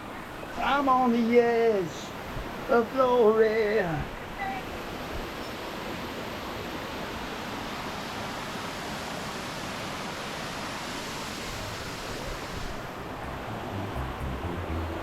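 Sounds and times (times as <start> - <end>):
waterfall rushing: 7.2 - 15.0.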